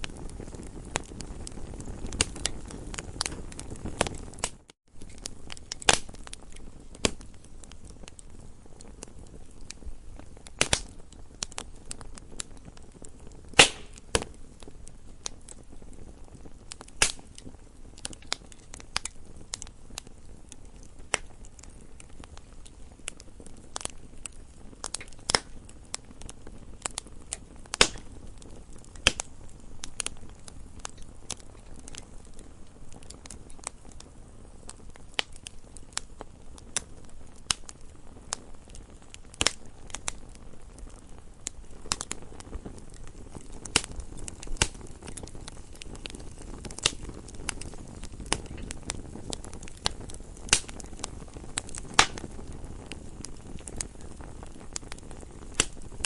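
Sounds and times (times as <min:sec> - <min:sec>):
campfire crackling: 0:00.0 - 0:56.0
low rumble of fire: 0:00.0 - 0:56.0
wood pops and snaps: 0:17.0 - 0:17.2, 0:24.8 - 0:25.5, 0:27.7 - 0:28.1, 0:29.0 - 0:29.3, 0:49.6 - 0:50.9, 0:51.6 - 0:52.2, 0:55.6 - 0:55.8.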